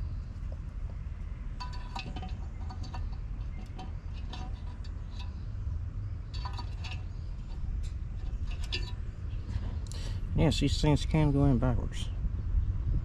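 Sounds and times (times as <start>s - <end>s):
low steady rumble: 0.0s - 13.0s
metal parts and tools clinking: 1.6s - 5.4s, 6.3s - 9.0s.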